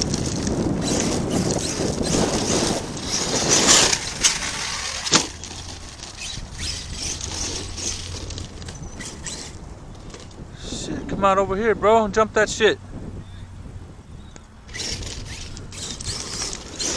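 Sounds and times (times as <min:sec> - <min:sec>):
electric motor whirring: 0:00.0 - 0:10.3, 0:14.7 - 0:16.9
tyres churning through dirt: 0:00.0 - 0:13.8, 0:14.4 - 0:16.9
wind buffeting microphone: 0:00.0 - 0:16.9.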